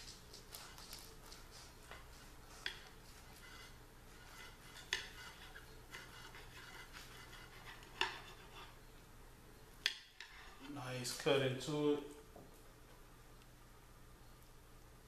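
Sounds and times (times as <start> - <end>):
cutlery scraping on plate: 1.8 - 8.8, 9.8 - 10.8.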